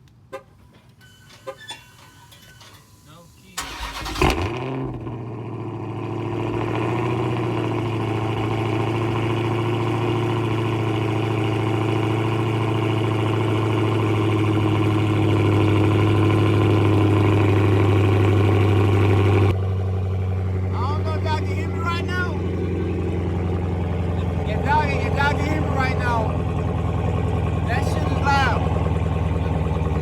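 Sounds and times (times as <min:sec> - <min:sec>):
car engine idling loudly: 0:03.6 - 0:30.0.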